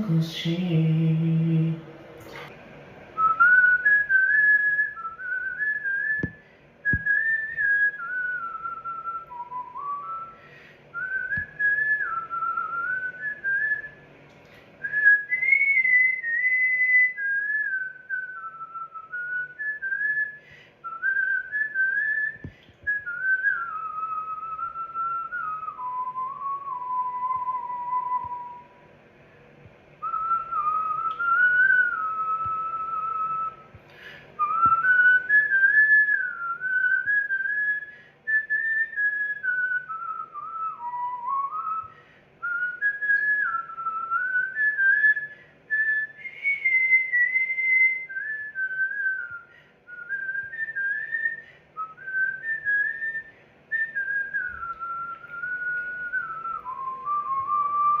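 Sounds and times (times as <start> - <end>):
person whistling a tune: 3.2 - 14.0, 14.8 - 28.7, 30.0 - 58.0.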